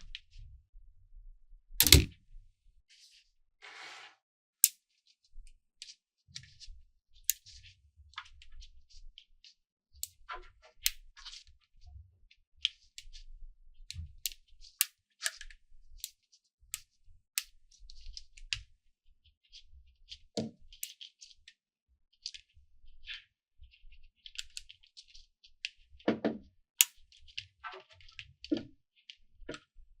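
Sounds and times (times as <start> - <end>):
magnetic balls clicking together: 1.8 - 2.1.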